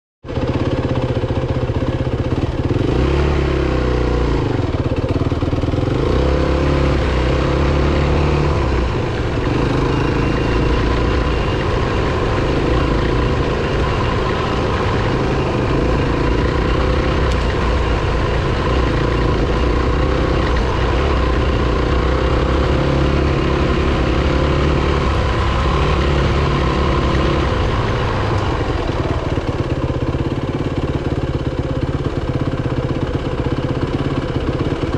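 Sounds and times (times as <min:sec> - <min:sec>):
dirt bike engine revving: 0:00.4 - 0:34.9.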